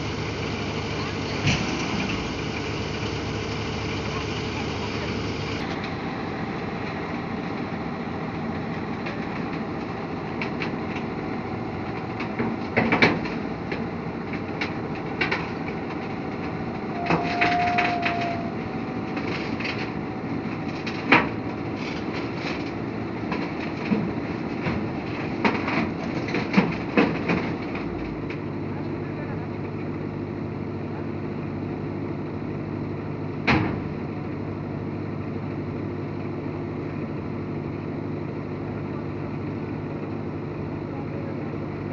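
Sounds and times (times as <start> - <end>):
machine engine running: 0.0 - 28.1
knocks and clanks: 11.9 - 20.0
brief squeal-like tone: 16.9 - 18.6.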